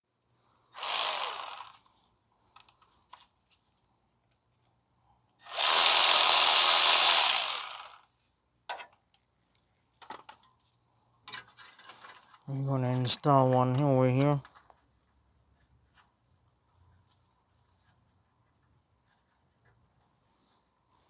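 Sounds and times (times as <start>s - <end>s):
power tool motor whirring: 0.8s - 1.8s, 5.4s - 8.0s.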